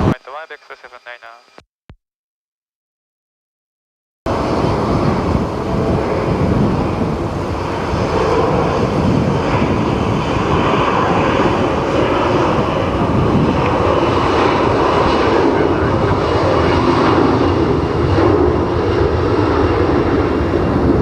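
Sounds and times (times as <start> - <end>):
jet engines roaring: 4.3 - 21.0
wind buffeting microphone: 4.3 - 21.0.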